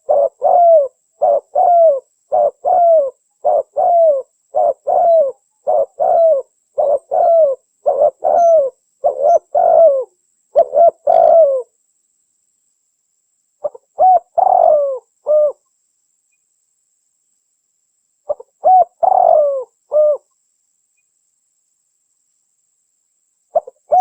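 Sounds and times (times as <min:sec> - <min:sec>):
dove cooing: 0:00.0 - 0:11.7, 0:13.6 - 0:15.6, 0:18.3 - 0:20.3, 0:23.5 - 0:24.0.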